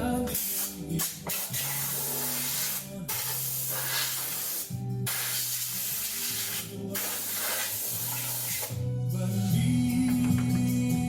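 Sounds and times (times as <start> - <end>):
soft love song: 0.0 - 1.3, 6.3 - 11.0.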